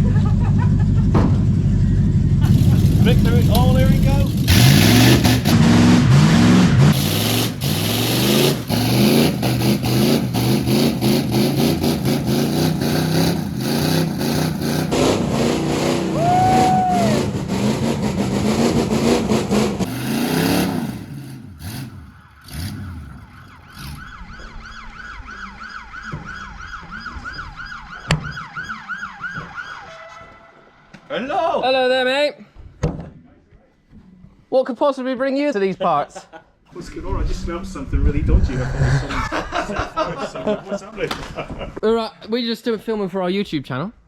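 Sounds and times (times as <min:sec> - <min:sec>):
pickup engines revving hard: 0:02.4 - 0:24.0
police siren yelping: 0:16.0 - 0:17.4, 0:21.7 - 0:30.6.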